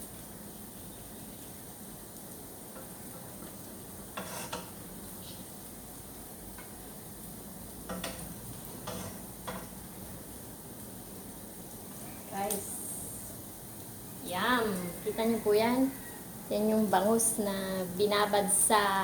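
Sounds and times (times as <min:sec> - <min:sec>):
frying hiss: 0:00.0 - 0:19.0
utensil scraping in frying pan: 0:02.8 - 0:05.2, 0:07.8 - 0:10.0.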